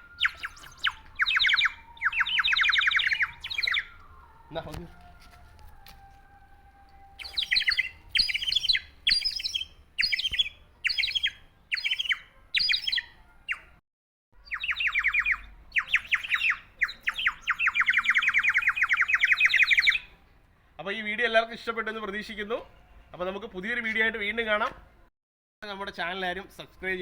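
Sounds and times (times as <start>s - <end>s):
water bird whistle warbling: 0.0s - 4.2s, 7.2s - 13.6s, 14.4s - 20.0s.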